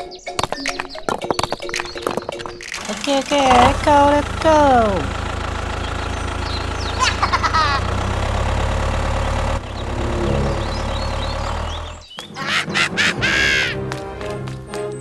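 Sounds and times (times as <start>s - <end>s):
engine idling: 2.8s - 12.1s.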